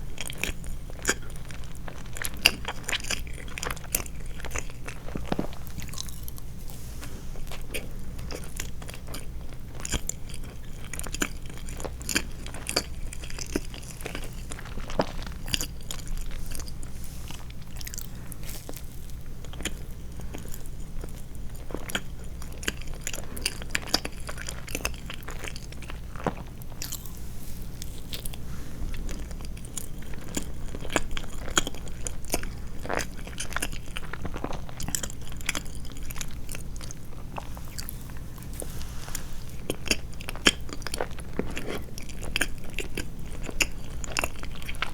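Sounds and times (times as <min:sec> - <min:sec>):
person chewing sweets: 0:00.1 - 0:44.9
steady low hum: 0:12.4 - 0:44.9.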